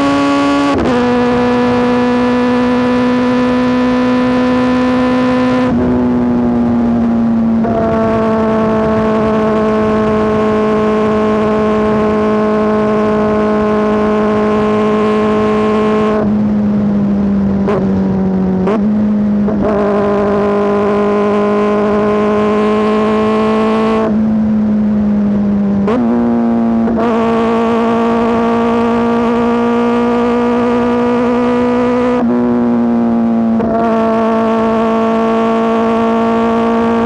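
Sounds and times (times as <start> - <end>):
motorcycle engine revving loud: 0.0 - 37.0.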